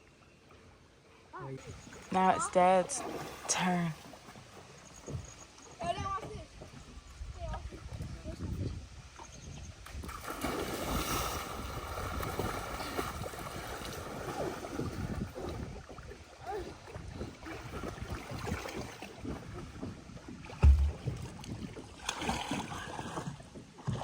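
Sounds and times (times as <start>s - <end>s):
wind rumbling on microphone: 6.0s - 22.0s
heavy thump: 20.6s - 21.4s.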